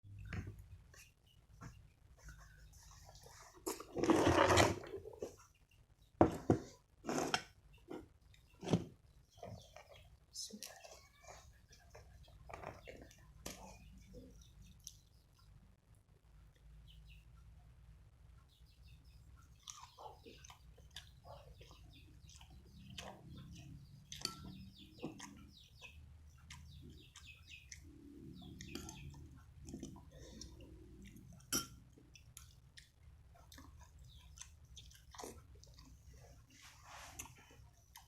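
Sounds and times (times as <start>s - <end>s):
person chewing with mouth clicks: 28.6s - 36.1s.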